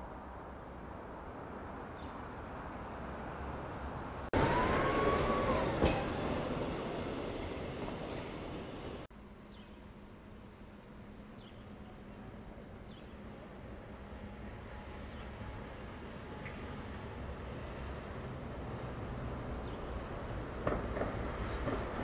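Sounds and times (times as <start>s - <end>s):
faint city hum: 0.0s - 22.0s
tram passing: 0.2s - 9.1s, 11.9s - 22.0s.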